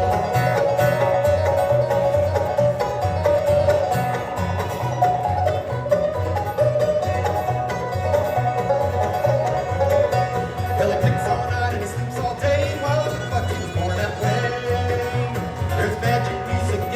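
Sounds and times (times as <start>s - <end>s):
bluegrass band playing: 0.0s - 16.9s
rapid banjo picking: 0.0s - 16.9s
steady bass: 0.0s - 16.9s.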